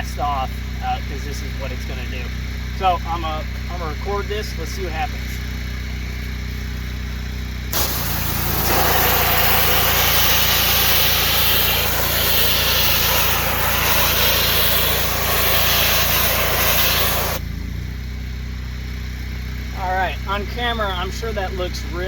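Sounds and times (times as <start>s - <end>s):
pressure washer engine running: 0.0s - 22.0s
pressure washer water jet hissing: 7.7s - 17.4s.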